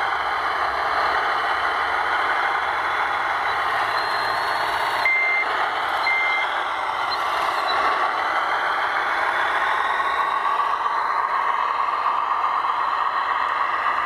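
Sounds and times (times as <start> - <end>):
reversing beeps: 3.5 - 6.5, 7.1 - 7.9.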